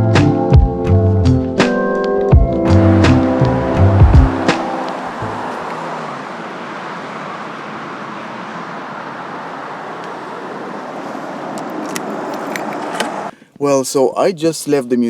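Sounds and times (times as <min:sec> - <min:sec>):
road traffic hiss and rumble: 0:02.6 - 0:13.3.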